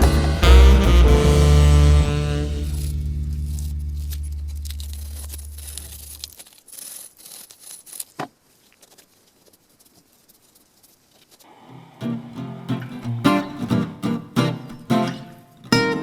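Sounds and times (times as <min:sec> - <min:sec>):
guitar chord ringing: 0:00.0 - 0:05.3, 0:12.1 - 0:16.0.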